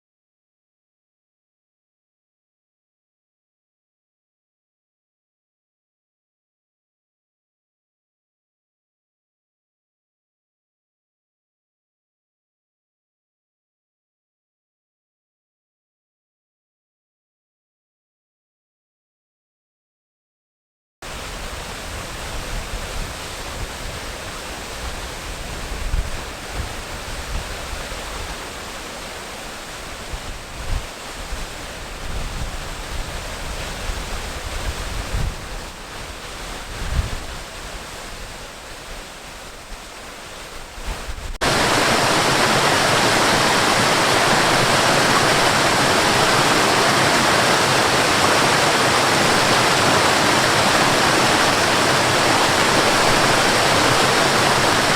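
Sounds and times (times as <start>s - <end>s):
rushing water: 21.0s - 54.9s
wind buffeting microphone: 21.4s - 28.8s, 29.8s - 54.9s.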